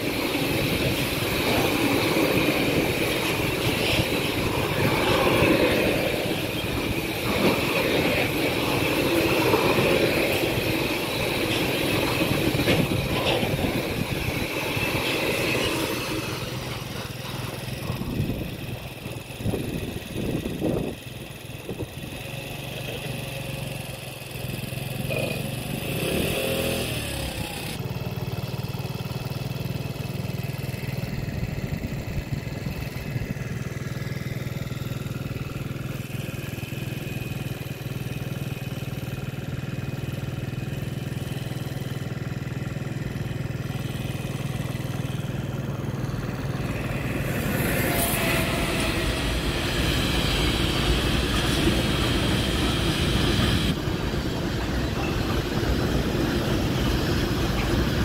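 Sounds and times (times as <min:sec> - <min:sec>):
freight wagon wheel clatter: 0:00.0 - 0:21.0
electric locomotive hum: 0:00.0 - 0:58.0.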